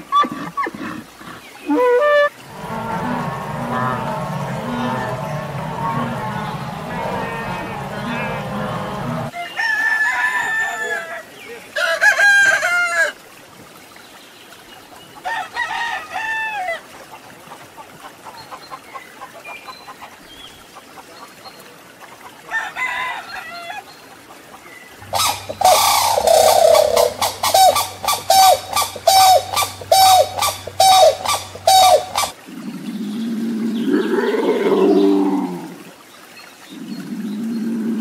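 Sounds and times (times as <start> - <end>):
crane calling with clicks: 1.8 - 9.3, 25.0 - 32.4
rooster crowing: 2.4 - 11.1.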